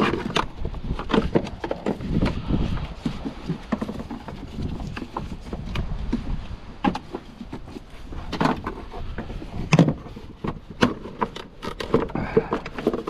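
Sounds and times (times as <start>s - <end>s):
hand tools clicking and knocking: 6.8s - 13.0s.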